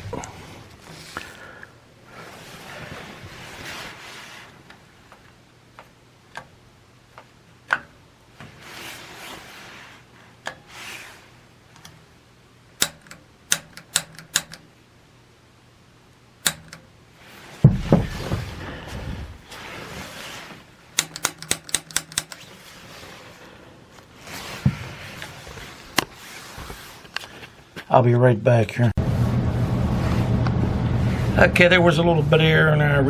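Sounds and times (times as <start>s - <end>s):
soft hiss: 0.0s - 7.6s
piezo igniter clicks: 12.8s - 14.6s, 16.4s - 16.8s
low rumble: 29.0s - 33.0s.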